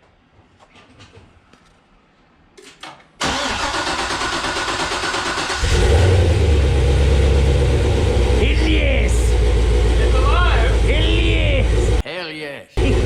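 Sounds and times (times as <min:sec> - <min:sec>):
engine starter cranking: 0:03.2 - 0:06.6
engine running deep and steady: 0:05.6 - 0:12.0, 0:12.8 - 0:13.0.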